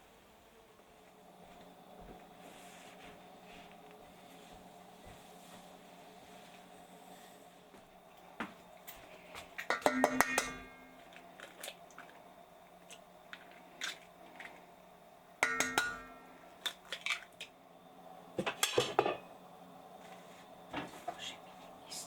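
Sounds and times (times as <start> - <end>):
kitchenware clinking and clattering: 9.5 - 12.2, 15.4 - 17.5, 18.4 - 19.3.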